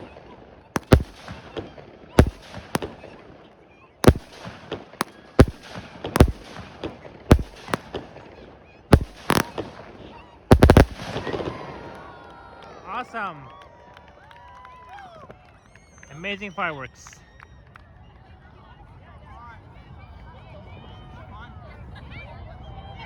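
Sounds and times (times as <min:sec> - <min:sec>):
fireworks bangs: 0:00.8 - 0:03.3, 0:04.0 - 0:08.2, 0:09.0 - 0:11.7.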